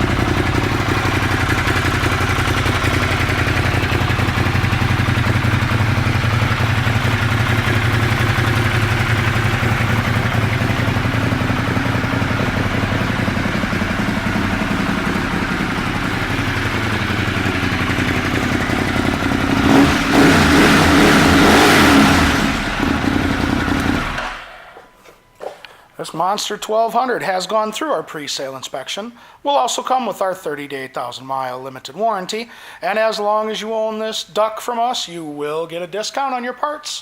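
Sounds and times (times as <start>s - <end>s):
motorcycle engine revving: 0.0s - 24.8s.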